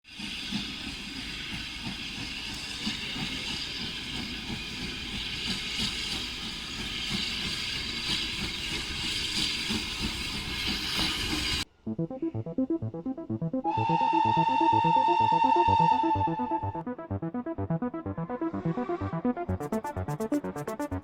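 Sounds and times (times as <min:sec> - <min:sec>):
steam locomotive hissing: 0:00.1 - 0:11.7, 0:13.7 - 0:16.7.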